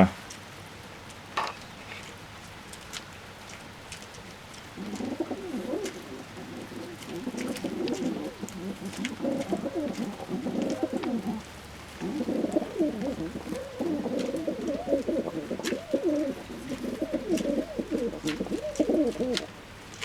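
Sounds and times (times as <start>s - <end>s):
pigeons cooing: 4.3s - 19.7s.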